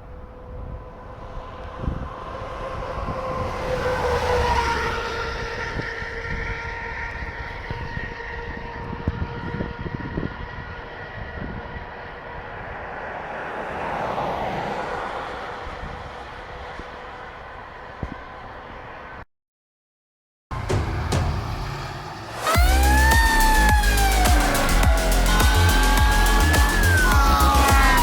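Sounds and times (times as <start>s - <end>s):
vehicle engine and tyre noise: 0.0s - 19.2s, 20.5s - 28.0s
multi-tone horn blast: 22.4s - 28.0s.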